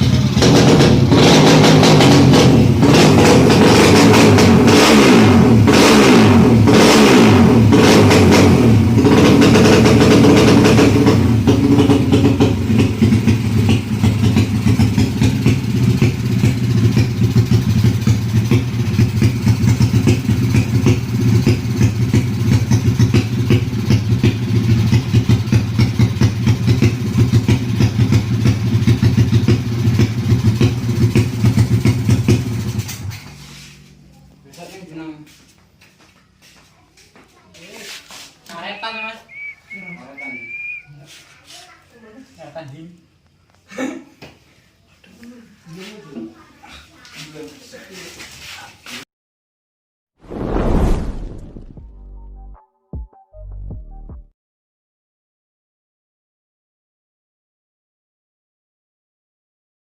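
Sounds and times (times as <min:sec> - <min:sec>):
motorcycle engine revving and idling: 0:00.0 - 0:36.5.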